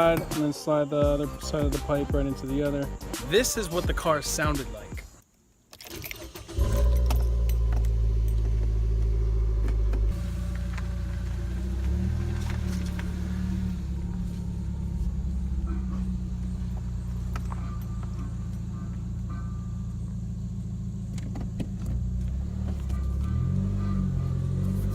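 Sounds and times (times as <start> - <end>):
car engine starting and idling: 5.8 - 24.9
loud deep exhaust: 6.6 - 24.9.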